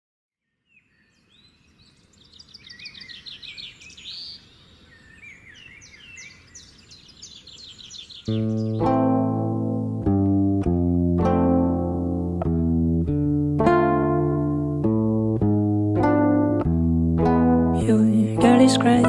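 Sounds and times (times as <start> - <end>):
birds chirping and trilling: 0.4 - 9.7
guitar and bass music: 8.3 - 19.0.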